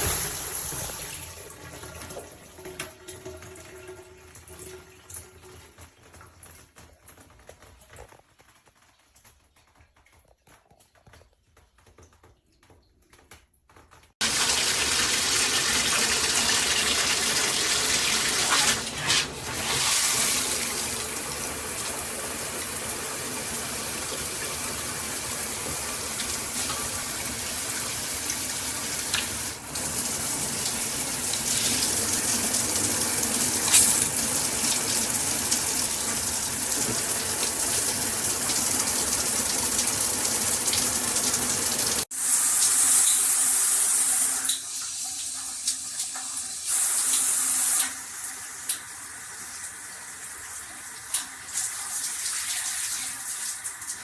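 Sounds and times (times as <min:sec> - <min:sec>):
shower head water spray hissing: 0:14.3 - 0:44.4.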